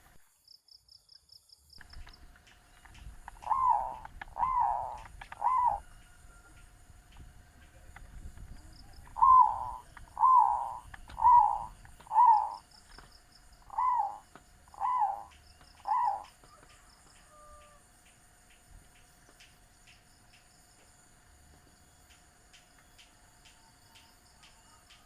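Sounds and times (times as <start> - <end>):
dove cooing: 3.2 - 6.1, 9.0 - 12.7, 13.6 - 16.6.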